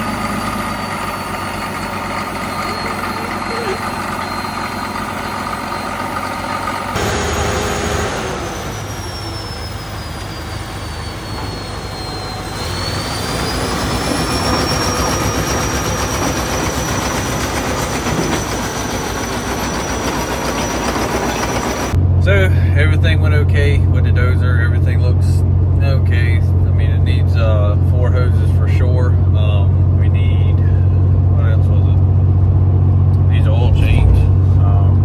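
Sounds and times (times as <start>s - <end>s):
heavy diesel engine running: 0.0s - 35.0s
high whine sliding in pitch: 33.4s - 35.0s.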